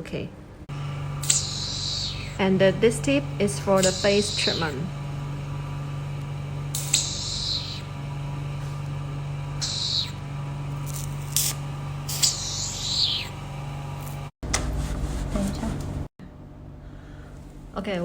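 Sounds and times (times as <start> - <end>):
steady machine hum: 0.0 - 18.0
suction handle hissing: 1.2 - 8.9, 9.6 - 14.3.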